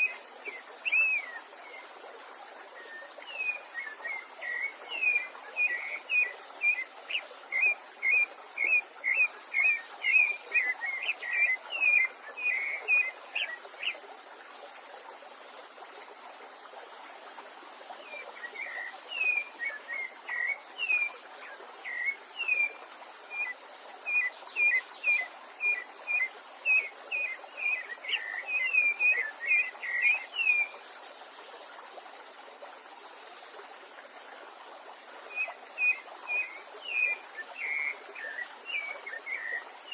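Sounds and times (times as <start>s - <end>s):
songbird singing: 0.0s - 2.0s, 2.7s - 14.0s, 18.0s - 30.9s, 35.3s - 39.9s
stream water flowing: 0.0s - 39.9s.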